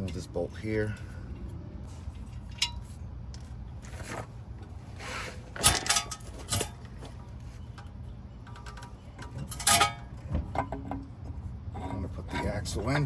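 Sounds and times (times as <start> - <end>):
steady low hum: 0.0 - 13.0
metal tools clinking and scraping: 5.5 - 11.0.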